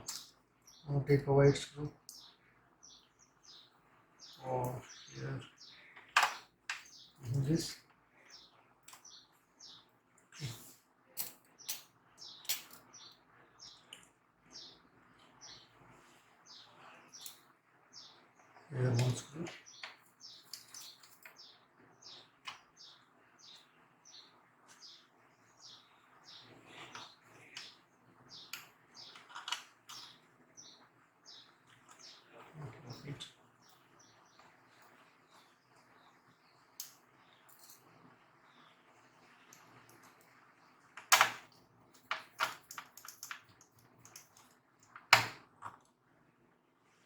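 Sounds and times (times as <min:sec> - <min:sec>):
small bird chirping: 0:00.0 - 0:38.9
laptop parts and tools clicking: 0:06.0 - 0:07.0, 0:28.4 - 0:30.2, 0:41.0 - 0:45.9.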